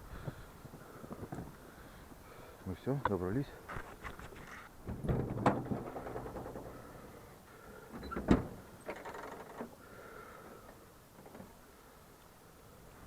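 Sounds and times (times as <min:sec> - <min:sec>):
faint rustling: 0:00.0 - 0:12.0.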